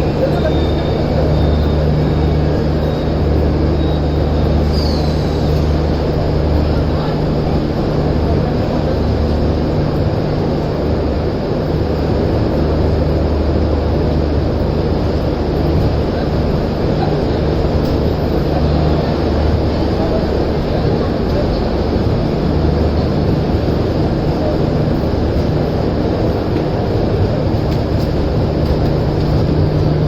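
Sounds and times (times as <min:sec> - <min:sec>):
train running rumble: 0:00.0 - 0:30.0
faint high squeal: 0:03.8 - 0:05.7.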